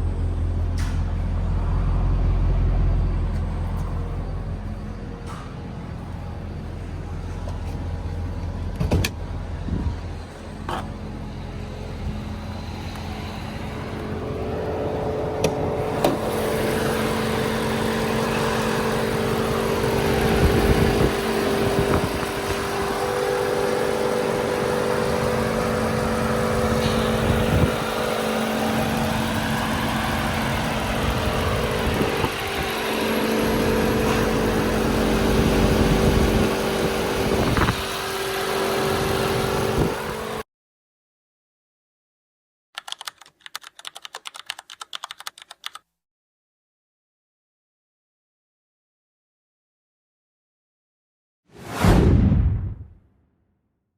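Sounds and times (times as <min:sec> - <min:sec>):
car engine and exhaust running: 0:00.0 - 0:40.4.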